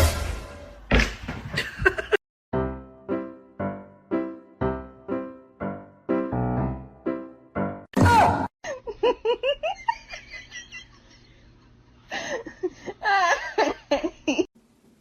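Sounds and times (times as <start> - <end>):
person giggling: 1.5 - 2.2, 8.6 - 11.5, 12.1 - 14.5.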